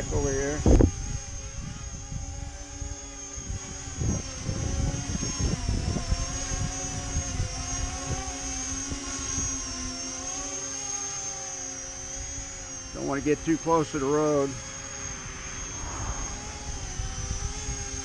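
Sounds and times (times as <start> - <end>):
wind buffeting microphone: 0.0 - 7.6, 14.6 - 18.0
model plane propellers whining: 0.0 - 18.0.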